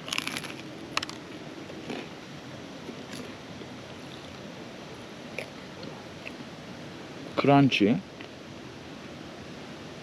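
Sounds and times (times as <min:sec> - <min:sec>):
person chewing crunchy snack: 0:00.0 - 0:02.1, 0:02.9 - 0:04.4.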